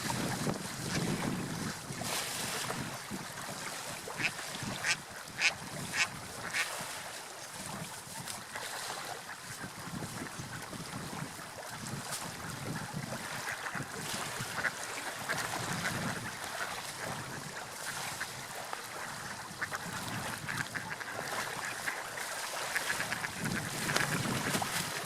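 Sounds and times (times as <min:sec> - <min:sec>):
water lapping and splashing: 0:00.0 - 0:25.0.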